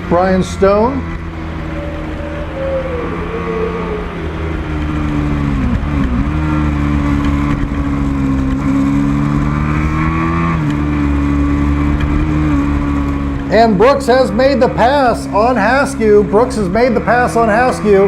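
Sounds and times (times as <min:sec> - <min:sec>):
racing motorcycle engines: 0:00.0 - 0:18.0.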